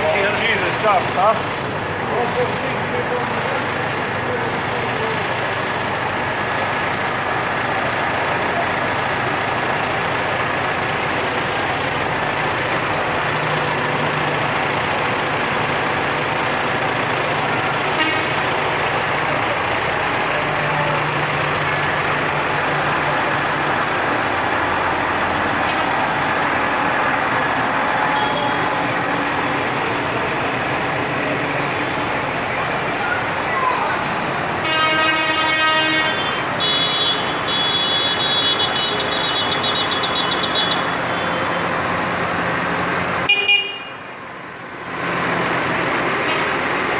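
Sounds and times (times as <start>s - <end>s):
tractor diesel engines passing: 0.0s - 46.9s.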